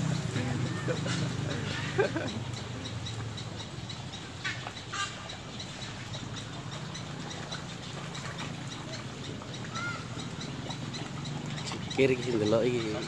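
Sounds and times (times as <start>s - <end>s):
rising-and-falling bird chirp: 8.7s - 13.0s.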